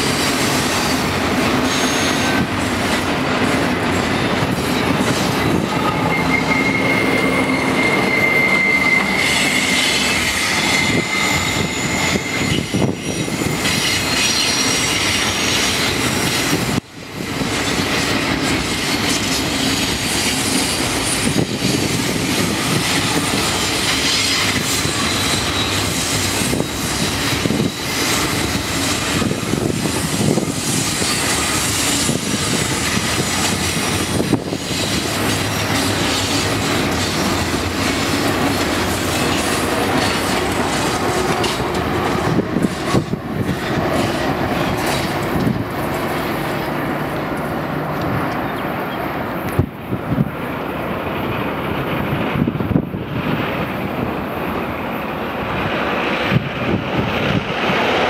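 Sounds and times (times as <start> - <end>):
high wheel squeal: 0.0 - 2.8, 4.0 - 16.6, 17.5 - 41.7
train wheels rumbling on rails: 0.0 - 58.0
wheels clicking over rail joints: 22.2 - 48.7.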